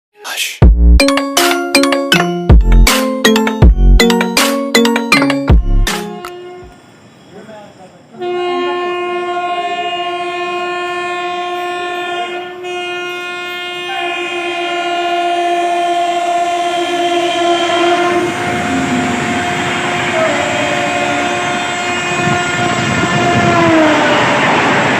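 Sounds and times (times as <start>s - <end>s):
locomotive horn blasts: 5.9s - 6.8s, 8.2s - 24.6s
passing train rumble and wheel clatter: 6.1s - 24.9s.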